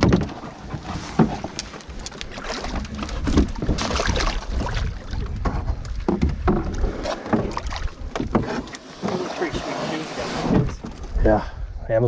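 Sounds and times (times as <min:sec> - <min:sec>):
water splashing: 0:00.0 - 0:06.2, 0:06.8 - 0:11.1
wind on microphone: 0:00.0 - 0:12.0.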